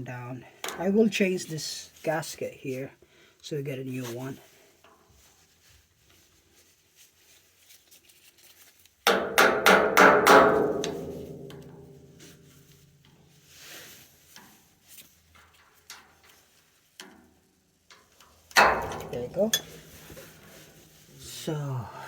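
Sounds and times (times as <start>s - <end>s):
metal knocking on metal: 18.6s - 19.8s.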